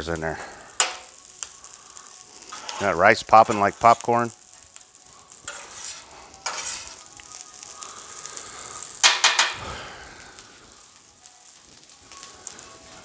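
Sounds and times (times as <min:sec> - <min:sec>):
rice sizzling on griddle: 0:00.0 - 0:13.0
spatula scraping griddle: 0:00.4 - 0:10.0.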